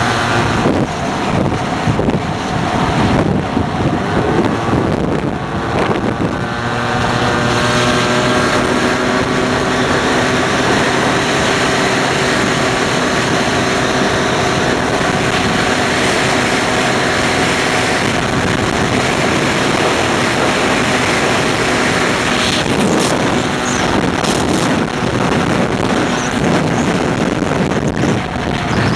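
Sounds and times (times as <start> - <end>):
two-stroke scooter engine: 0.0 - 28.9
wind noise on microphone: 0.0 - 28.9.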